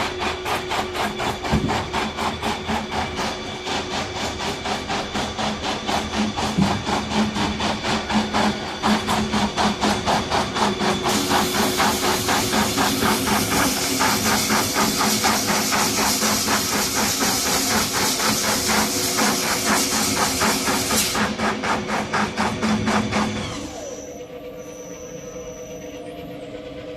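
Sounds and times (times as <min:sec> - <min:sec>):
machine fast regular clacking: 0:00.0 - 0:23.9
machine hum: 0:00.0 - 0:26.9
loud hiss: 0:11.0 - 0:21.4.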